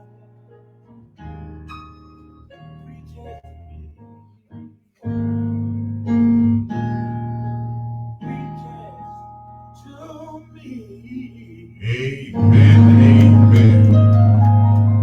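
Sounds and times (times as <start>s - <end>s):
keyboard chords: 0.0s - 15.0s
worship music: 8.2s - 15.0s
person singing: 9.8s - 15.0s.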